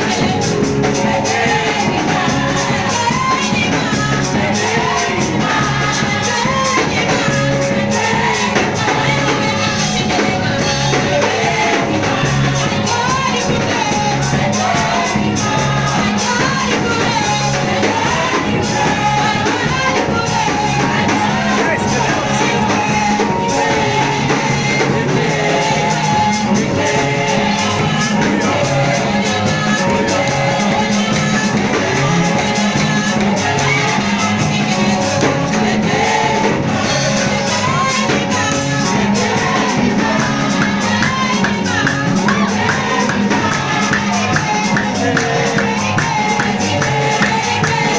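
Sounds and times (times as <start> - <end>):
bass notes: 0.0 - 47.9
steady drum beat: 0.0 - 47.9
voices singing worship song: 0.0 - 47.9.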